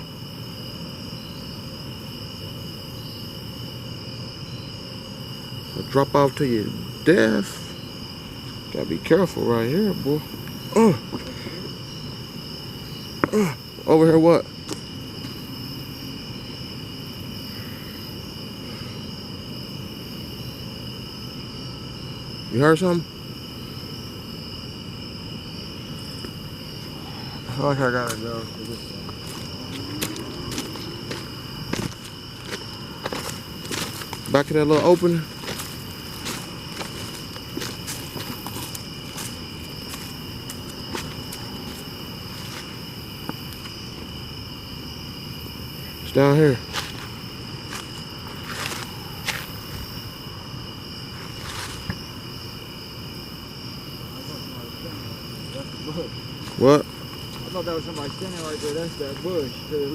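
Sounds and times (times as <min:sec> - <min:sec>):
night insects chirping: 0:00.0 - 0:59.9
footsteps crunching: 0:14.5 - 0:15.6, 0:26.0 - 0:44.5, 0:46.5 - 0:50.2, 0:51.0 - 0:52.2, 0:56.1 - 0:59.7.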